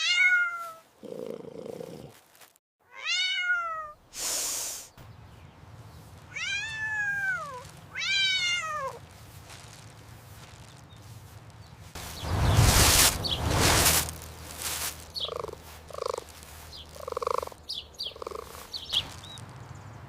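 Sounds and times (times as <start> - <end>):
cat meowing: 0.0 - 0.9, 2.9 - 4.0, 6.3 - 9.0, 15.3 - 16.3
cat hissing: 3.4 - 4.9, 15.1 - 18.7
cat purring: 15.0 - 18.7.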